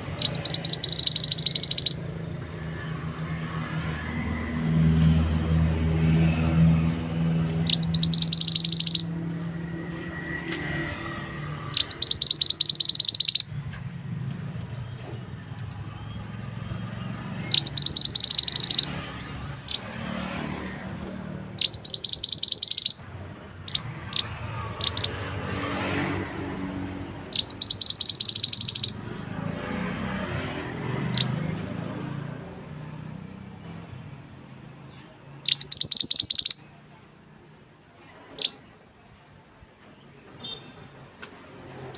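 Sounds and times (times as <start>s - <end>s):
songbird trilling: 0.0s - 2.1s, 7.5s - 9.8s, 11.6s - 13.6s, 17.4s - 20.0s, 21.4s - 25.3s, 27.2s - 29.2s, 31.0s - 31.4s, 34.8s - 36.8s, 38.4s - 38.7s
short single bird chirps: 7.7s - 9.1s, 27.4s - 29.0s.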